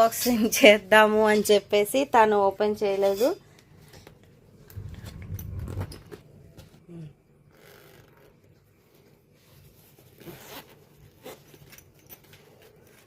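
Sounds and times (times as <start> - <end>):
zipper on fabric bag: 10.0 - 11.5.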